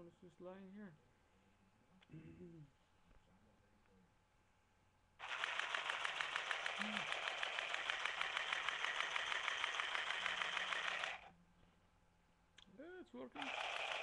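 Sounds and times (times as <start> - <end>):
handheld sewing machine clatter: 5.2 - 11.3, 13.4 - 14.0.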